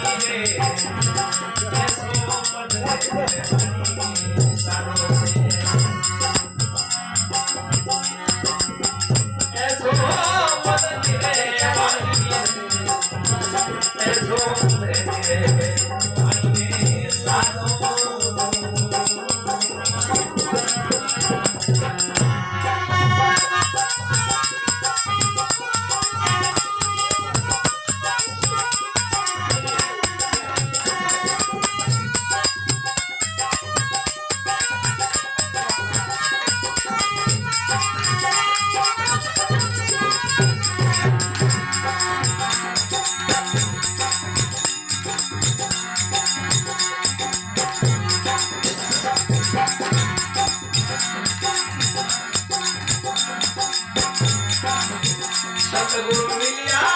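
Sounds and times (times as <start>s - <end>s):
jingling rattle percussion: 0.0s - 56.9s
folk melody line: 13.3s - 56.9s
steady low drum beat: 23.4s - 56.9s.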